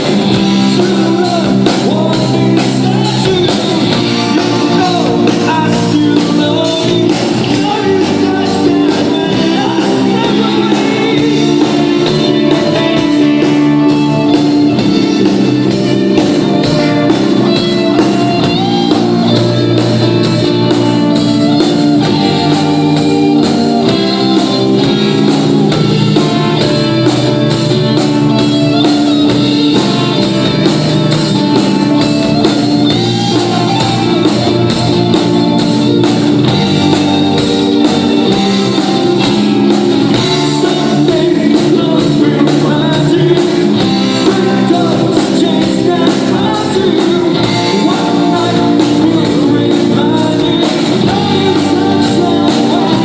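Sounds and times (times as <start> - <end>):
guitar: 0.0 - 53.0
person singing: 0.0 - 53.0
rock band playing: 0.0 - 53.0
steady drum beat: 0.0 - 53.0.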